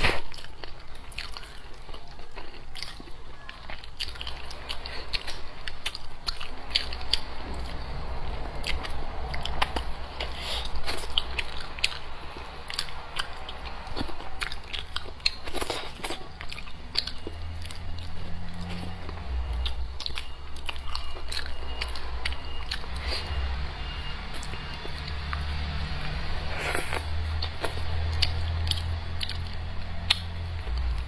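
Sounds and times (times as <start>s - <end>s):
person chewing with wet smacks: 0.0s - 31.0s.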